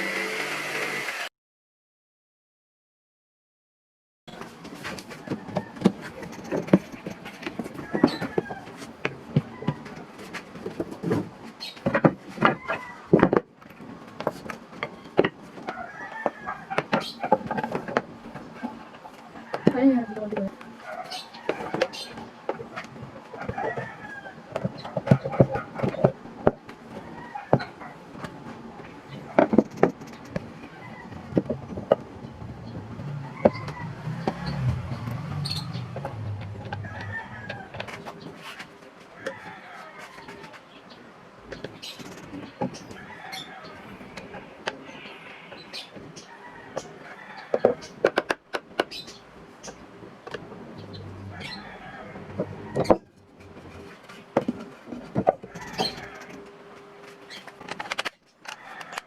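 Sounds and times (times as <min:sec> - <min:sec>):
wood rubbing: 0:14.1 - 0:38.8
low hum: 0:31.6 - 0:37.7
wooden knocks and clunks: 0:52.3 - 0:56.3.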